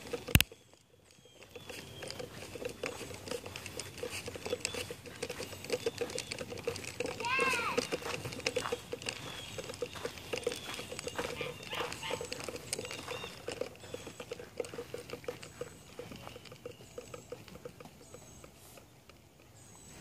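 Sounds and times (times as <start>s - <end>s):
soft rapid pattering clicks: 0.0s - 20.0s.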